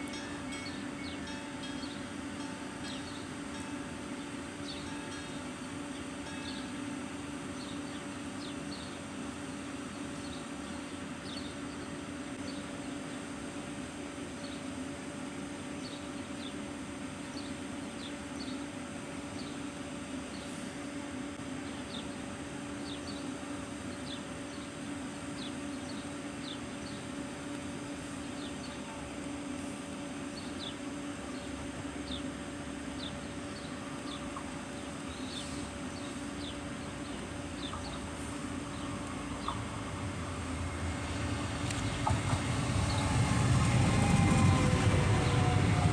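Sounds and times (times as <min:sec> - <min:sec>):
low mechanical hum: 0:00.0 - 0:45.9
small birds chirping: 0:33.0 - 0:39.8.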